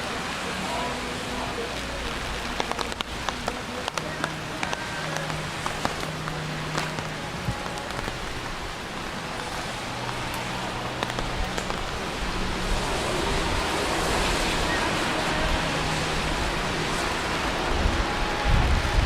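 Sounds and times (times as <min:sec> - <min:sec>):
rain splashing on hard surfaces: 0:00.0 - 0:19.0.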